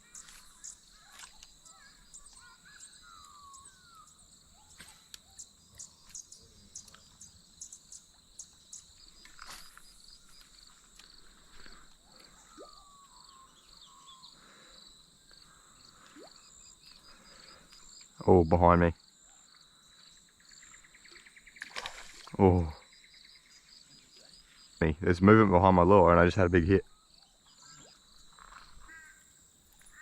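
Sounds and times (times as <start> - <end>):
birds whistling calls: 0.0 - 8.9, 12.2 - 14.5
insects droning: 0.0 - 30.0.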